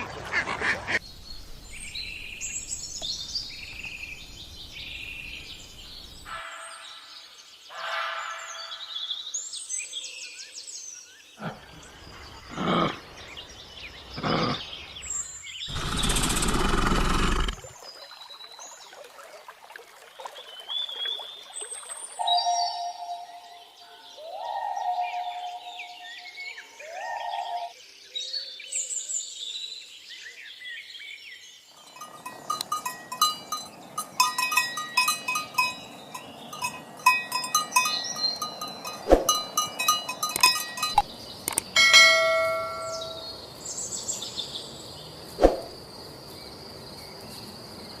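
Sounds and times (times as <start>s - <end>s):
small birds chirping: 0.9s - 7.4s, 8.4s - 18.4s, 30.9s - 48.0s
clanking metal bells: 31.8s - 43.4s.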